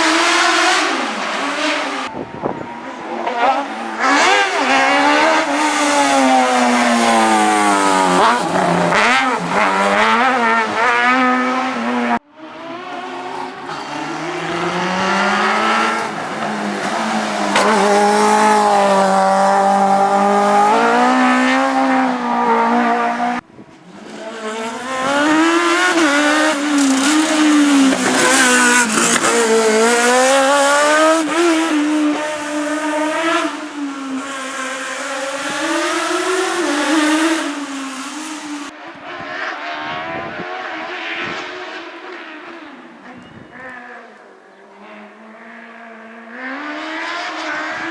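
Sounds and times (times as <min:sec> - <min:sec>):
race car engine revving: 0:00.0 - 0:42.7.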